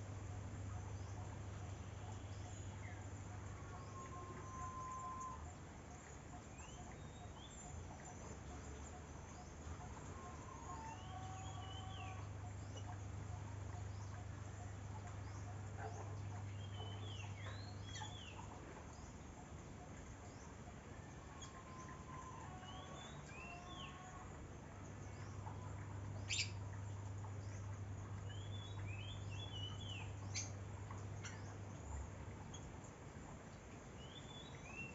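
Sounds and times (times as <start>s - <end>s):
steady low hum: 0.0s - 22.5s
faint outdoor background noise: 0.0s - 34.9s.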